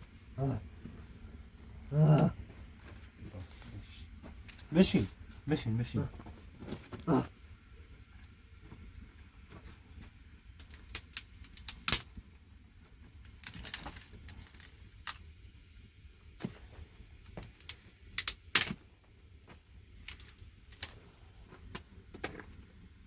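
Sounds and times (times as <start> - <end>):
small hard objects clicking: 10.6 - 12.2, 13.1 - 15.2, 17.4 - 18.8, 20.0 - 21.0.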